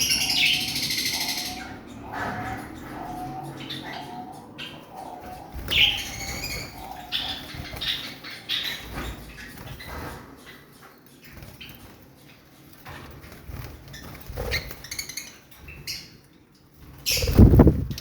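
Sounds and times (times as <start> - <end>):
lovebirds chirping: 0.0 - 16.2, 16.9 - 18.0
wing flutters and rustling: 5.2 - 16.0, 16.8 - 18.0.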